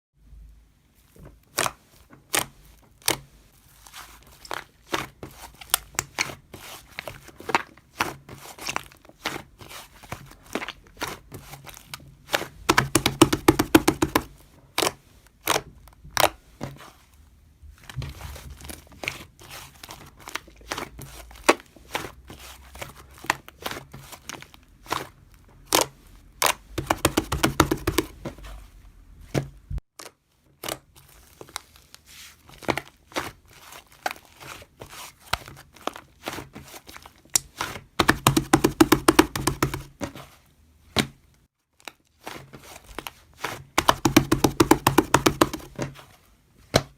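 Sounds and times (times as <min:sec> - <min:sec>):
sharp clicks and taps: 0:12.7 - 0:14.3, 0:26.8 - 0:28.1, 0:38.0 - 0:39.9, 0:43.8 - 0:45.8.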